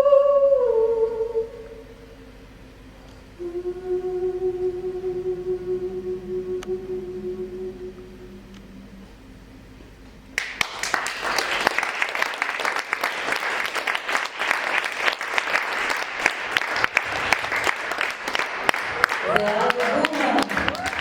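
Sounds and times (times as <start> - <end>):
audience applause: 10.4 - 21.0.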